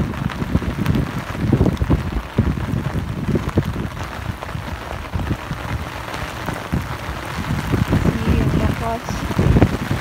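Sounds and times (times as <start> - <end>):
heavy rain: 0.0 - 10.0.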